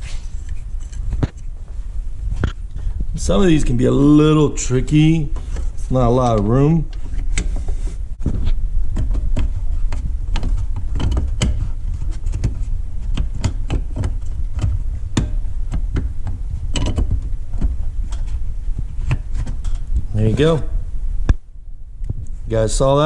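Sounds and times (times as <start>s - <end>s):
steady low rumble: 0.0s - 23.0s
plastic clicks taps and scrapes: 8.3s - 18.3s.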